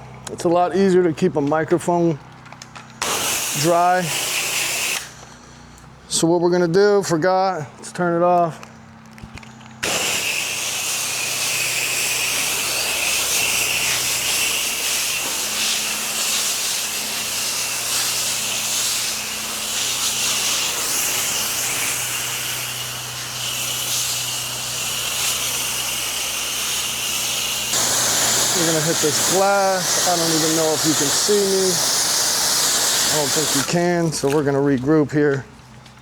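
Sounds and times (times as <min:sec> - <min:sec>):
pressure washer spray hiss: 0:03.0 - 0:05.3, 0:09.8 - 0:34.4.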